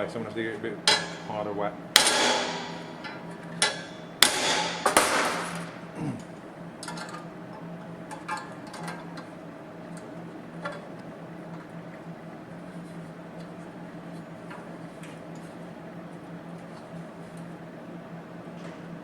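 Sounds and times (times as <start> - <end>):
hammer blows on steel panel: 0.9 - 5.9.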